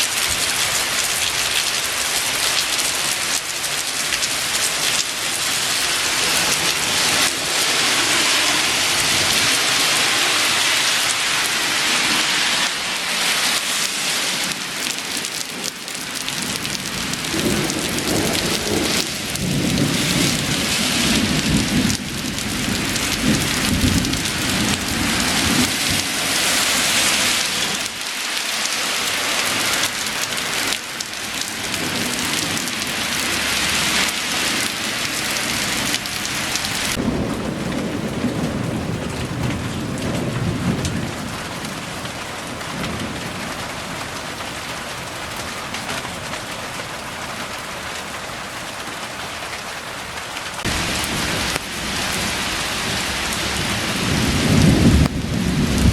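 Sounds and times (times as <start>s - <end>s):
heavy rain pouring: 0.0s - 55.9s
deep thunder rumbling: 16.5s - 26.4s, 35.4s - 41.8s, 50.6s - 55.9s.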